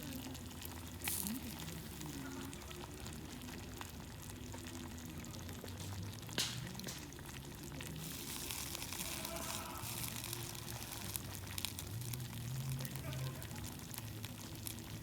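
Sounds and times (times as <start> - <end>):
food sizzling: 0.0 - 15.0
sharp pop of cooking food: 6.3 - 7.2.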